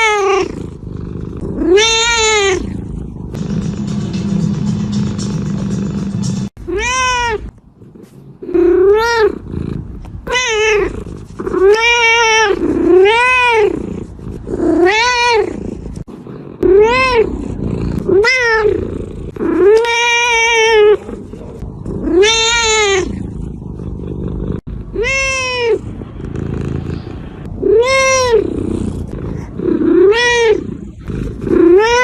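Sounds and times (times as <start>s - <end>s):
cat meowing: 0.0s - 0.5s, 1.6s - 2.8s, 6.6s - 7.5s, 8.4s - 9.4s, 10.2s - 13.8s, 14.6s - 15.6s, 16.6s - 17.4s, 18.1s - 21.4s, 22.0s - 23.2s, 24.9s - 26.0s, 26.7s - 28.7s, 29.8s - 32.0s.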